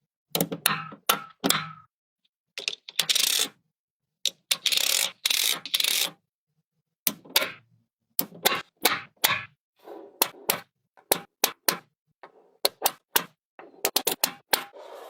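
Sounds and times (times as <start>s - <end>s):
magnetic pieces clicking together: 2.6s - 3.5s, 4.3s - 6.2s.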